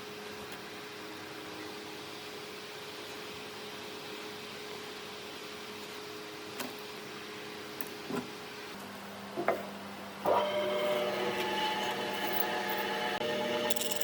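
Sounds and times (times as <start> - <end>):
power tool motor whining: 10.3 - 14.0.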